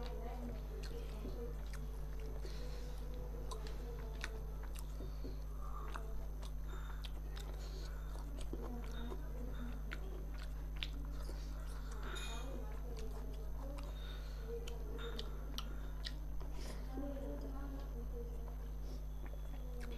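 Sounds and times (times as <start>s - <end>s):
low electrical hum: 0.0s - 19.9s
person chewing food: 0.0s - 19.9s.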